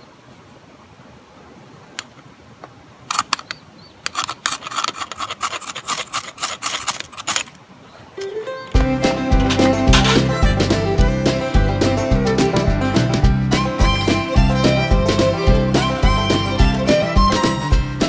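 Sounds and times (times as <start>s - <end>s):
hand scraping strokes: 4.0s - 7.6s
music: 8.7s - 18.0s.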